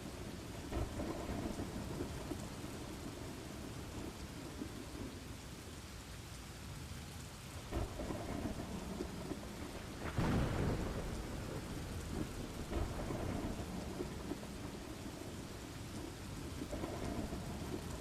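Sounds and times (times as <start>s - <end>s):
thunder rumbling: 0.0s - 5.4s, 7.6s - 18.0s
rain falling: 0.0s - 18.0s.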